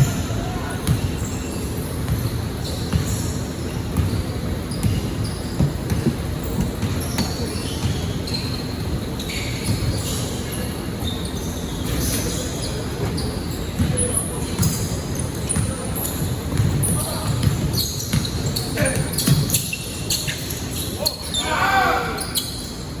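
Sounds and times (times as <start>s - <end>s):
basketball bouncing on gym floor: 0.0s - 10.2s, 13.0s - 19.9s
sneakers squeaking: 0.0s - 23.0s.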